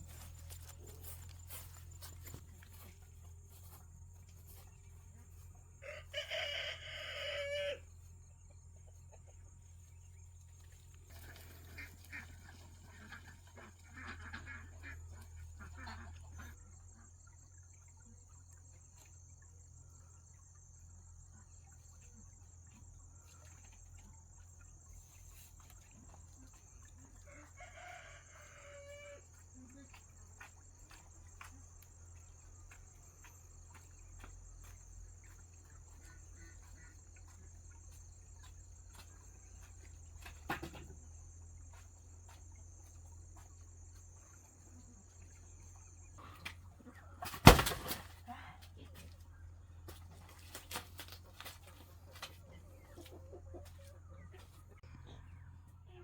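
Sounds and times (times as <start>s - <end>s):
rooster crowing: 5.8s - 7.9s, 27.3s - 29.2s.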